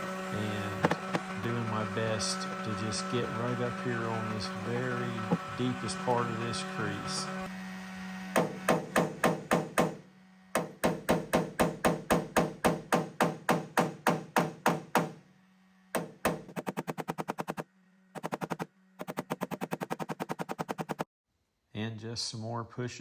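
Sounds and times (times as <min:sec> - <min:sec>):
heat gun humming: 0:00.0 - 0:15.3, 0:15.9 - 0:21.0
rapid tapping on metal panel: 0:10.6 - 0:15.2, 0:16.0 - 0:17.6, 0:18.2 - 0:21.0.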